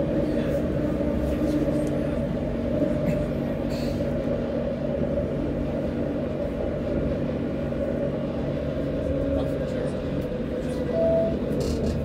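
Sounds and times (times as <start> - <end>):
tram low rumble: 0.0 - 12.0.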